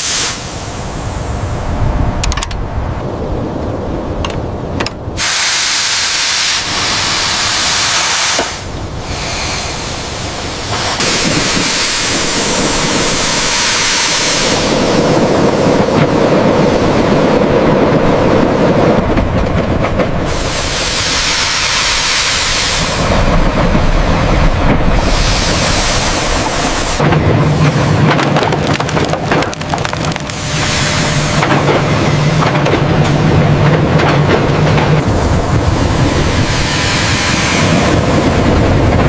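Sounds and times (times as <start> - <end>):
loud hissing rush: 0.0 - 2.2, 5.1 - 17.3, 20.2 - 28.1, 34.5 - 38.9.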